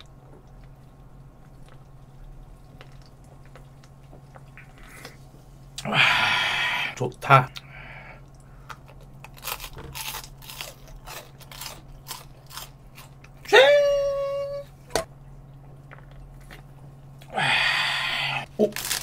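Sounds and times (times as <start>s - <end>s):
crunchy chewing: 8.2s - 13.4s, 18.5s - 19.0s
brief high voiced sound: 13.5s - 14.7s.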